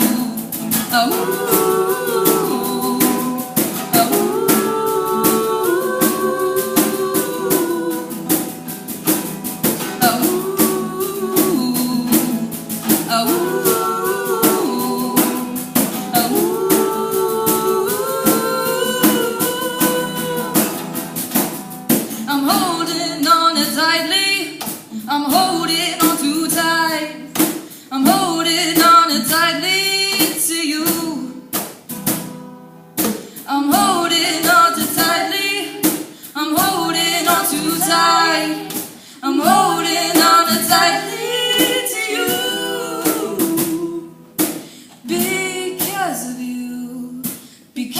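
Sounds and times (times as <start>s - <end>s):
girls singing vocal runs: 0.0s - 21.2s, 22.0s - 27.3s, 27.9s - 31.4s, 33.4s - 47.9s
sharp percussive hits: 0.0s - 22.2s
instrumental backing: 0.0s - 23.8s, 30.2s - 46.0s.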